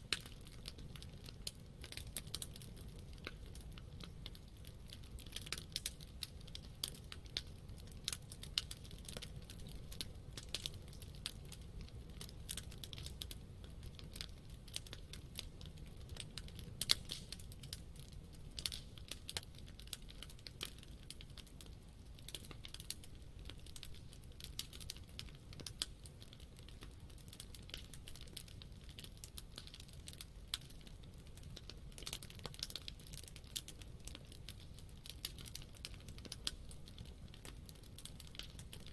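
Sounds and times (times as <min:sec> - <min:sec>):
campfire crackling: 0:00.0 - 0:38.9
low rumble of flames: 0:00.0 - 0:38.9
sharp fire pops and snaps: 0:00.0 - 0:38.9.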